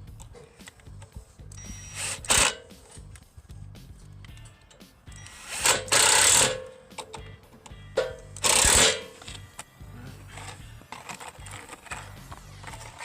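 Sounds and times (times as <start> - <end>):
power driver running: 0.6 - 2.6, 4.3 - 7.2, 8.0 - 13.0.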